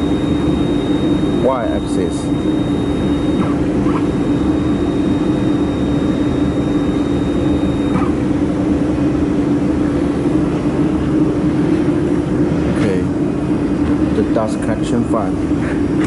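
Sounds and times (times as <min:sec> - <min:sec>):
welding equipment humming: 0:00.0 - 0:08.8.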